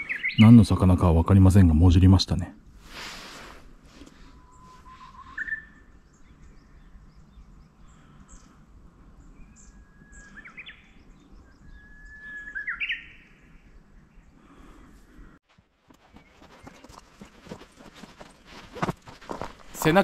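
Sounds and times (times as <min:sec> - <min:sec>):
small birds chirping: 0:00.0 - 0:01.8, 0:04.0 - 0:20.0
songbird whistling phrases: 0:04.4 - 0:05.9, 0:09.6 - 0:13.4.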